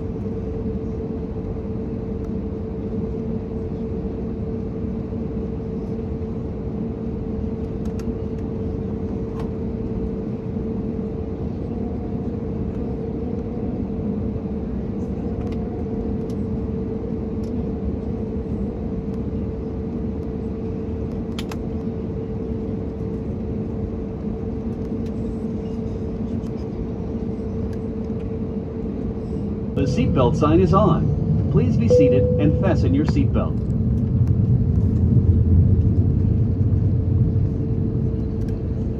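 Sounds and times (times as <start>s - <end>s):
airplane cabin noise: 0.0s - 38.9s.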